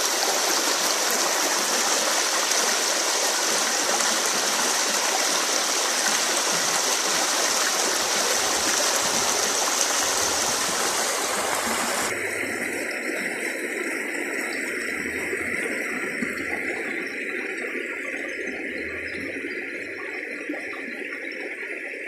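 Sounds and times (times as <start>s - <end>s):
creek water rushing: 0.0s - 14.4s.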